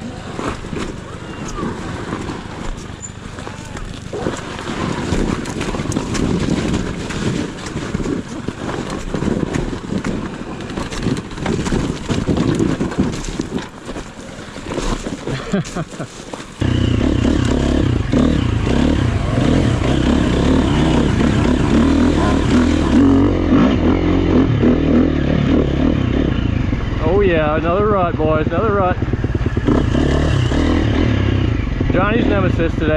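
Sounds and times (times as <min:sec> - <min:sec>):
dirt bike engine: 0:00.0 - 0:32.9
wind noise on microphone: 0:04.1 - 0:15.2.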